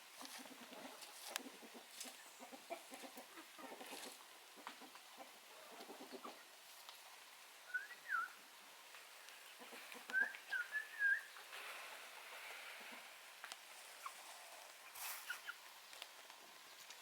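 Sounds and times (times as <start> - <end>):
chickens clucking: 0.1 - 8.2, 9.0 - 17.0
whistled chirps bending in pitch: 7.7 - 8.4, 10.1 - 11.4.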